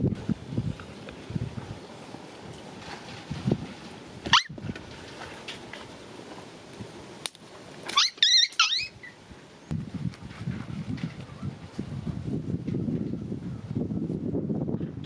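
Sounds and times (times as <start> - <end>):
animal squeaky calls: 4.3 - 4.5, 7.9 - 9.2.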